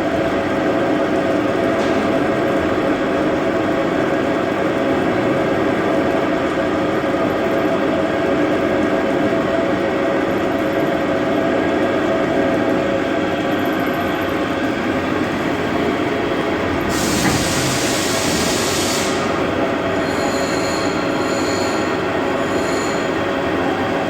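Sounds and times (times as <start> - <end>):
machining centre mechanical hum: 0.0 - 24.0
loud hiss: 16.9 - 19.7.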